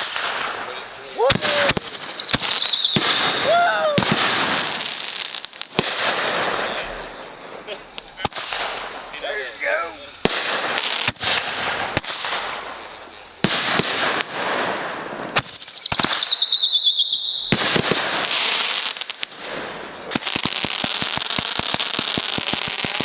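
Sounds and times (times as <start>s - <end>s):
falling firework whistle: 0.0s - 4.8s, 15.2s - 18.8s
firecracker pops: 0.0s - 23.0s
fireworks bangs with crackle: 0.0s - 23.0s.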